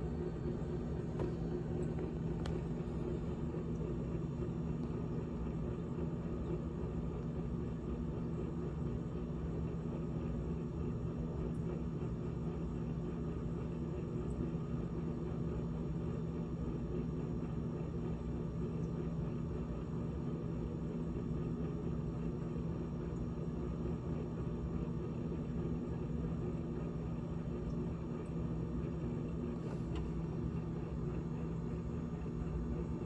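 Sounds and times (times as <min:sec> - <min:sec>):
refrigerator humming: 0:00.0 - 0:33.0
soft whirring noise: 0:00.0 - 0:33.0.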